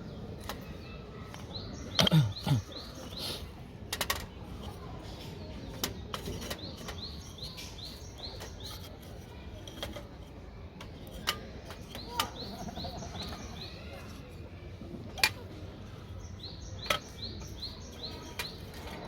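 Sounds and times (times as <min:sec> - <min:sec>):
small bird chirping: 0:11.8 - 0:14.2, 0:16.1 - 0:19.0.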